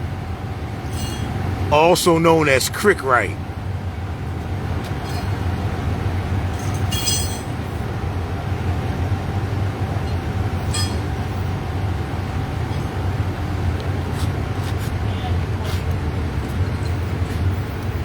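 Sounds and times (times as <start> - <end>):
vehicle engine idling: 0.0 - 18.0
short metallic clinks: 6.6 - 7.6.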